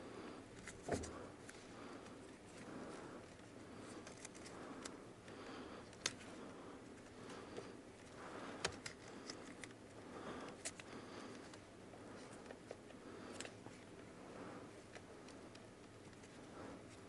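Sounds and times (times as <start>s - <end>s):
hands handling car wiring: 8.0s - 9.9s.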